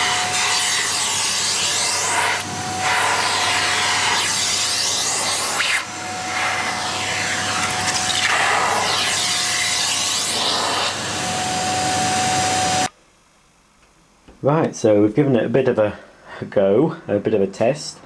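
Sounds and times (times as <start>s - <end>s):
vacuum cleaner whining: 0.0s - 12.9s.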